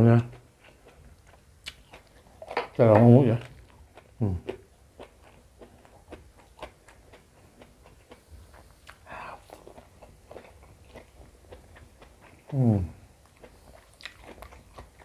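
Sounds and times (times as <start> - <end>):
mouth clicks and chewing: 13.2 - 15.0.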